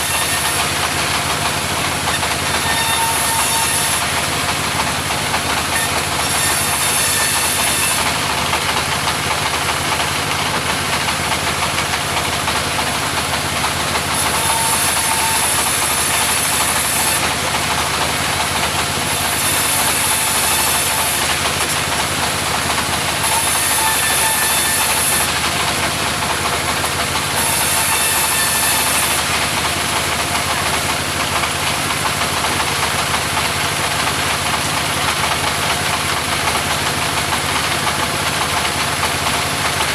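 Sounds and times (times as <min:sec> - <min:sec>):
saw cutting timber: 0:00.0 - 0:39.9
sawmill engine running: 0:00.0 - 0:39.9.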